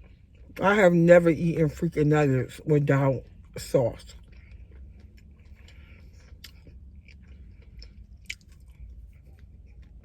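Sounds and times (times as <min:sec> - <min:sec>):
wet chewing sounds: 0:02.8 - 0:10.0.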